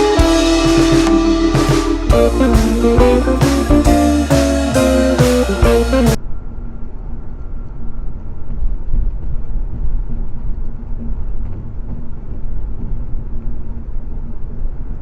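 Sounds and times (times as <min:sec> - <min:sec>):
rock guitar music: 0:00.0 - 0:06.2.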